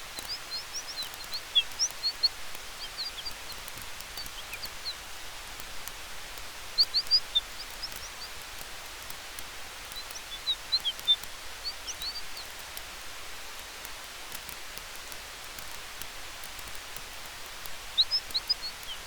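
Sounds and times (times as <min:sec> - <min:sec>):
campfire crackles: 0:00.0 - 0:19.0
soft steady hiss: 0:00.0 - 0:19.0
high chirps: 0:00.2 - 0:05.0.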